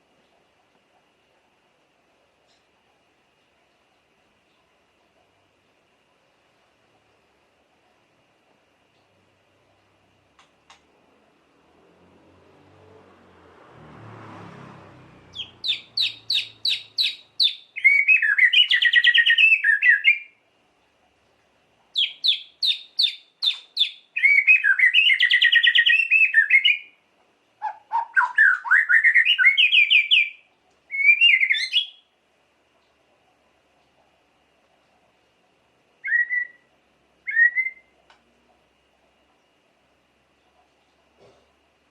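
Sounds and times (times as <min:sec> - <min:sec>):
songbird singing: 0:15.0 - 0:20.9, 0:21.8 - 0:32.2, 0:36.0 - 0:38.1.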